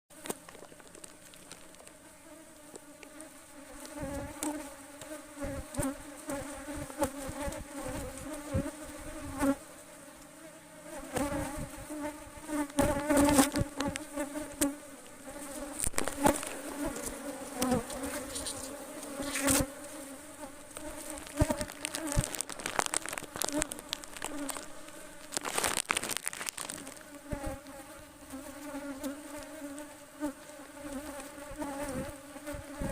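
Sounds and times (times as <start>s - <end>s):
sharp crackles and knocks: 0.1s - 2.0s, 15.7s - 19.7s, 20.7s - 27.7s
honeybees buzzing: 0.2s - 32.9s.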